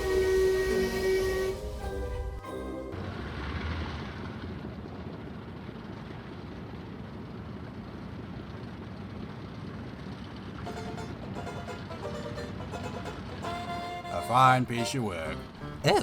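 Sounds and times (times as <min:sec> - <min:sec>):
moving train rumbling: 0:00.0 - 0:06.8, 0:10.6 - 0:16.0.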